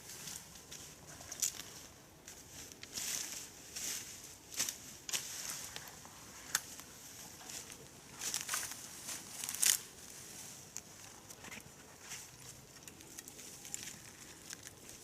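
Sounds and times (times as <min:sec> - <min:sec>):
footsteps crunching dry leaves: 0:00.0 - 0:11.3.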